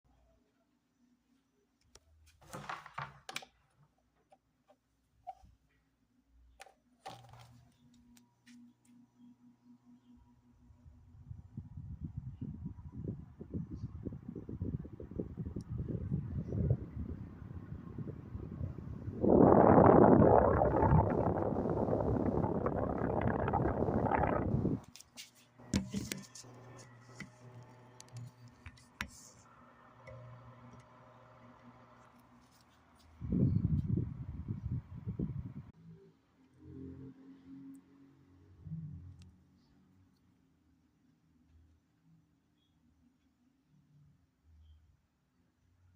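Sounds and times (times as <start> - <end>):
fan humming: 14.4 - 24.8.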